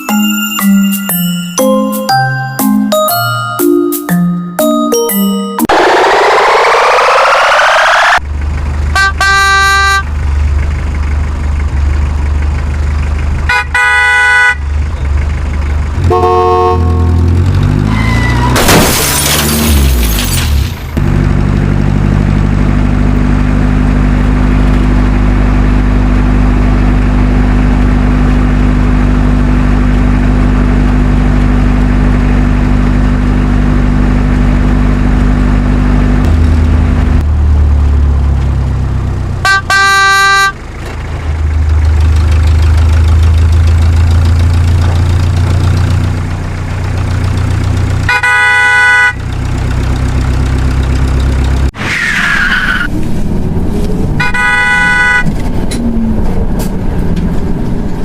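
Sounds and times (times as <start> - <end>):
truck engine running: 5.6 - 51.8, 52.9 - 58.0
truck horn blasts: 8.8 - 10.2, 13.4 - 14.7, 16.0 - 18.6, 39.4 - 40.7, 48.0 - 49.3, 54.2 - 55.4.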